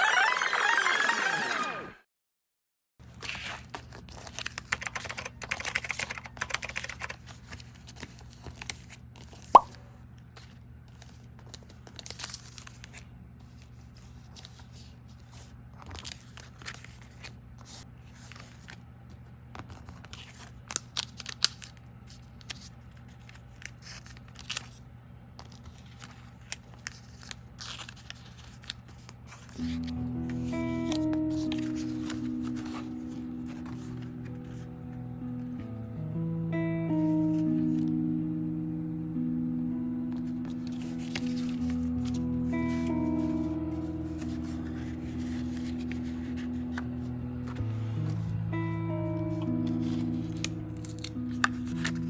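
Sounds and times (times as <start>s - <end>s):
crinkling and tearing: 7.1s - 17.4s, 19.6s - 24.8s, 25.4s - 34.5s, 40.5s - 43.4s, 49.8s - 52.0s.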